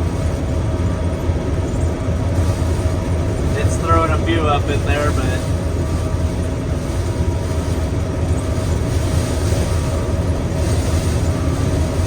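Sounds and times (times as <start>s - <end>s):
combine harvester running: 0.0s - 12.0s.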